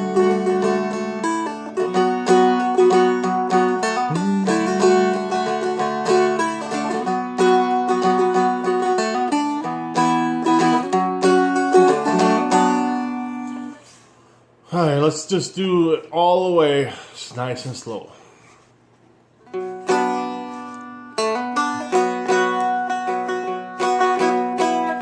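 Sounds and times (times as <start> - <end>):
dulcimer melody plucked: 0.0 - 13.8, 19.6 - 25.0.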